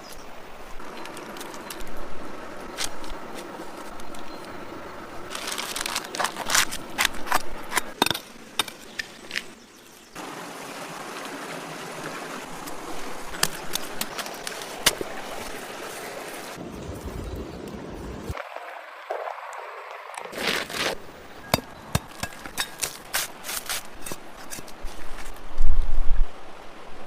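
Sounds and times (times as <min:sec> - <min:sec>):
flowing water: 0:00.0 - 0:16.6.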